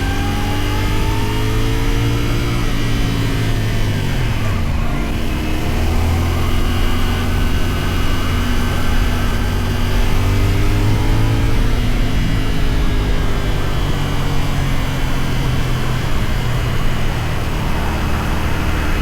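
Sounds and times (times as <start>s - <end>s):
motorcycle engine running: 0.0s - 19.0s
road noise: 0.0s - 19.0s
wind: 0.0s - 19.0s.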